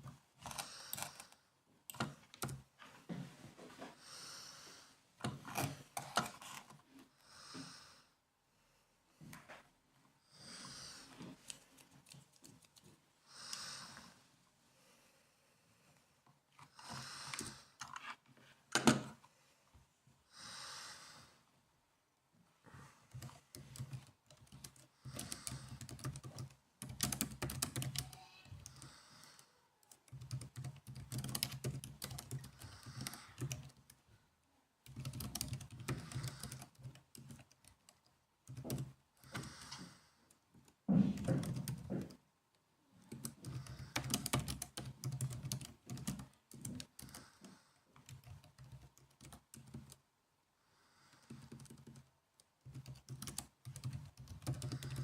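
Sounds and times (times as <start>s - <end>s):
laptop keyboard typing: 0.0s - 2.7s, 11.4s - 12.9s, 23.1s - 34.0s, 34.8s - 42.2s, 43.1s - 50.0s, 51.2s - 55.0s.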